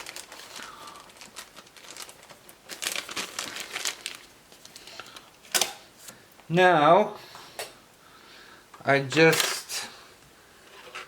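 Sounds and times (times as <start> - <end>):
rustling crackles: 0.0 - 5.4.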